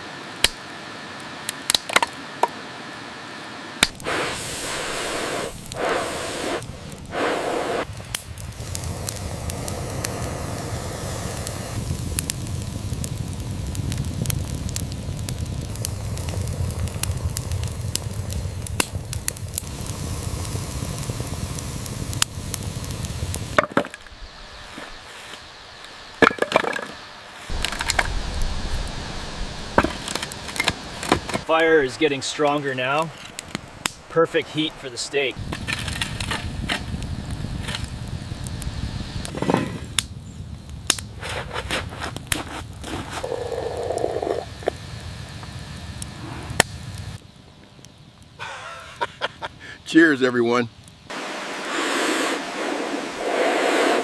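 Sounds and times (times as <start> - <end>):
wood fire crackling and popping: 0.3 - 2.5, 3.8 - 54.0
steady low rumble: 4.0 - 26.2, 27.0 - 39.4.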